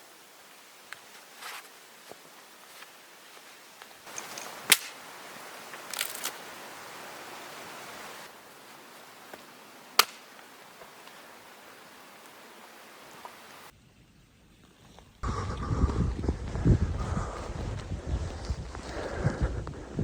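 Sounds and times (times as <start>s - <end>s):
rustling: 0.9s - 6.6s
sharp cracks: 4.1s - 5.1s, 5.8s - 6.4s, 9.9s - 10.5s.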